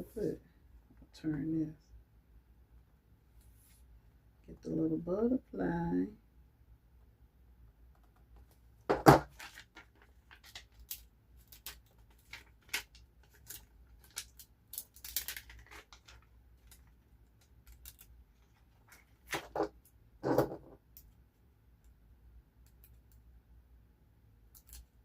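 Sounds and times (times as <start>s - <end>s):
paper rustling and crinkling: 8.9s - 17.0s, 17.6s - 19.8s.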